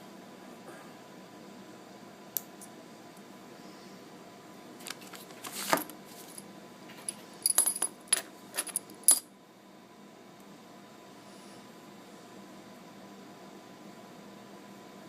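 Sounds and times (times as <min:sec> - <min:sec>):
small metal parts clinking: 0:07.0 - 0:09.3.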